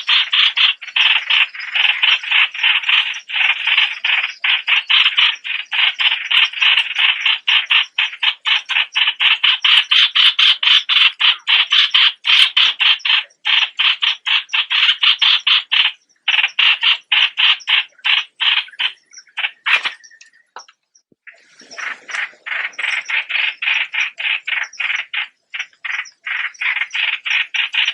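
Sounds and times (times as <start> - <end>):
bird calling harsh notes: 6.1 - 27.9.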